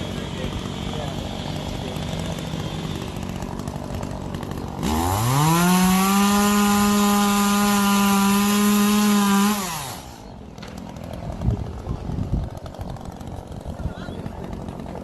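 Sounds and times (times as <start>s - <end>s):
chainsaw revving and idling: 0.0s - 15.0s.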